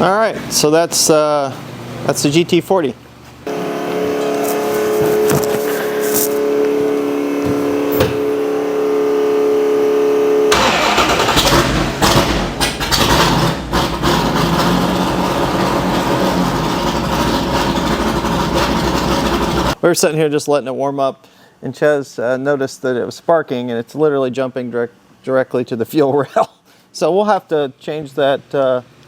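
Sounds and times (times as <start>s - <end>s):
car engine idling roughly: 10.5s - 19.8s.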